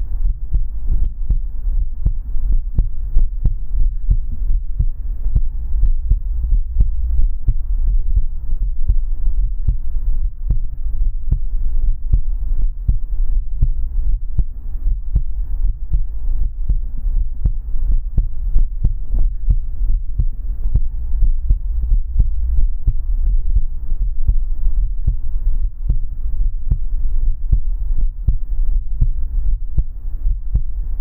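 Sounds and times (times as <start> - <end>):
constant low hum: 0.0 - 31.0
heartbeat throbbing: 0.0 - 31.0.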